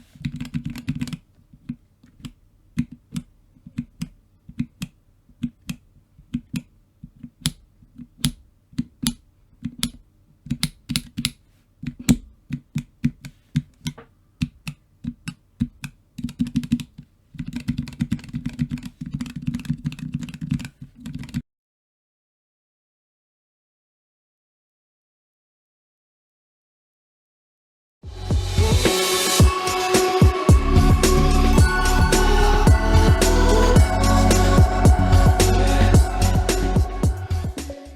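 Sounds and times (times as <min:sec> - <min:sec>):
mechanical keyboard key presses: 0:00.2 - 0:21.4.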